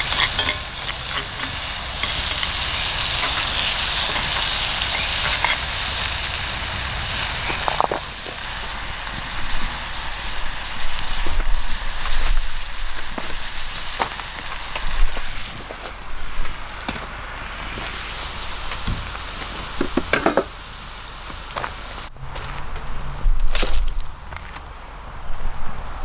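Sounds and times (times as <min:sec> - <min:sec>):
food sizzling in a skillet: 0:00.0 - 0:22.1
wood fire crackling: 0:00.0 - 0:26.0.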